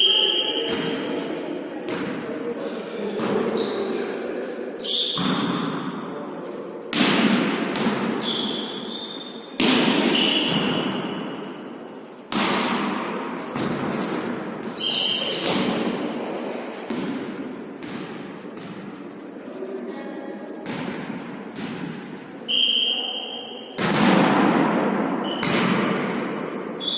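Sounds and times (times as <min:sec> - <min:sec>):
volleyball hits ringing in hall: 0:00.0 - 0:04.1, 0:04.8 - 0:19.2, 0:20.6 - 0:26.9
short high squeaks: 0:04.8 - 0:05.2, 0:08.2 - 0:10.5, 0:14.8 - 0:15.5.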